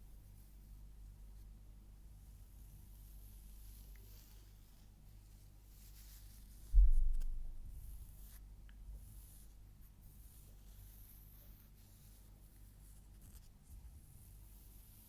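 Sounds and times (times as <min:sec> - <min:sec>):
low thump: 0:06.7 - 0:08.1
scratching and rustling: 0:09.2 - 0:15.0.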